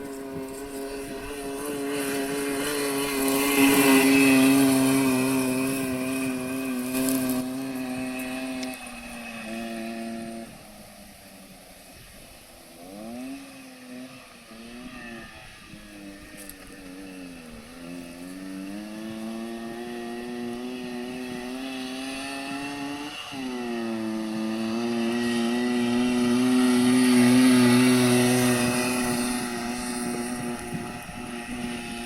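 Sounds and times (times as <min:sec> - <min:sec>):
moped engine pulling hard: 0:00.0 - 0:32.0.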